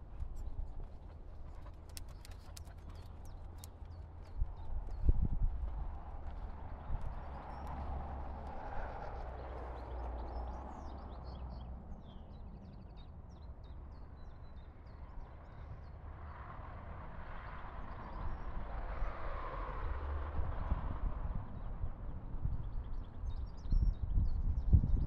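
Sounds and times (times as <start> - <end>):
small birds chirping: 0.1 - 5.1.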